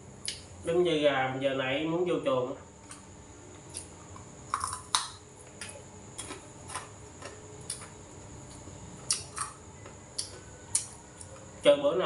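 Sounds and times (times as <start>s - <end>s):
crunchy food chewing: 2.8s - 11.6s.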